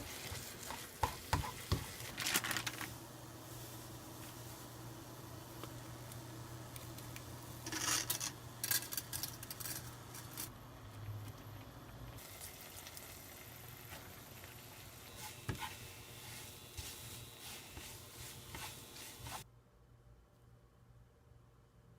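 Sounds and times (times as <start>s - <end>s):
utensil scraping and clattering on pan: 0.0s - 2.0s, 15.1s - 19.4s
pasta sizzling in a frying pan: 0.0s - 8.7s, 12.2s - 19.4s.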